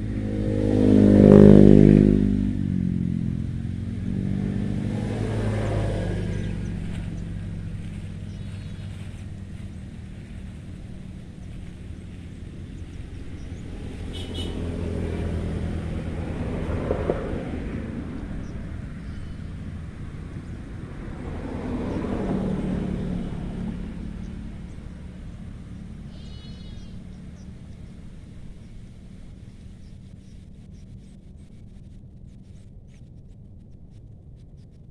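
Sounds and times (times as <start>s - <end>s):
vehicles passing: 0.0s - 34.7s
low engine hum: 0.0s - 34.9s
short high animal call: 26.1s - 27.0s.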